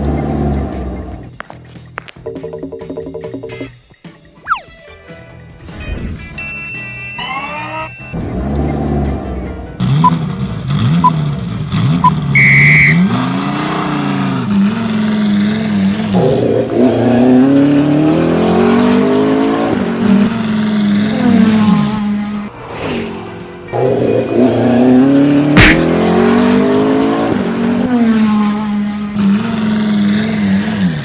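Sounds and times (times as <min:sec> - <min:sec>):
car engine revving: 0:00.0 - 0:01.4, 0:07.3 - 0:31.0
short high honk: 0:12.4 - 0:13.0.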